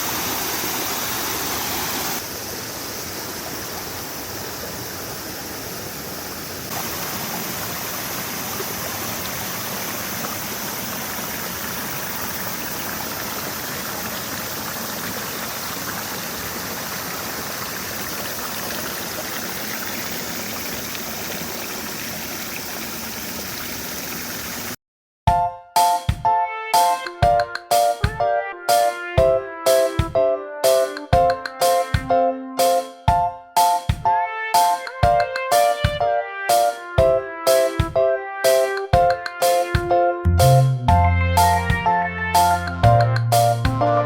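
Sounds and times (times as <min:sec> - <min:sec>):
running water rushing: 0:00.0 - 0:24.8.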